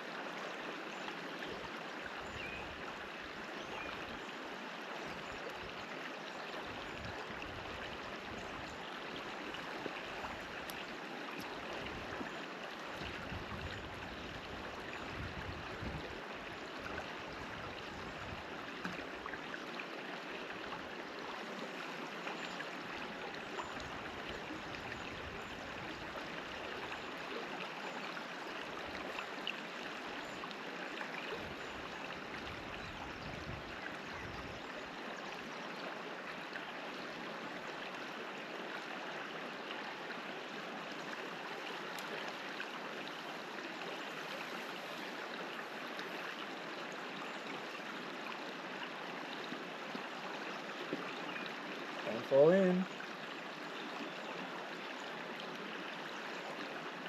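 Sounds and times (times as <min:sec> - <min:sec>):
river water flowing over rocks: 0:00.0 - 0:57.0.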